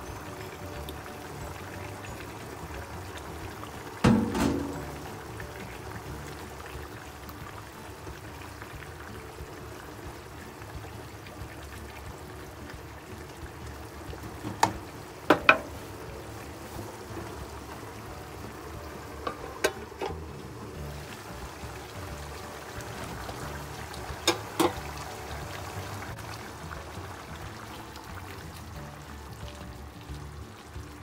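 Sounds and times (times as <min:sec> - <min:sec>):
sauce simmering and bubbling in pan: 0:00.0 - 0:31.0
metal lid clinking: 0:04.1 - 0:05.0, 0:19.2 - 0:20.2.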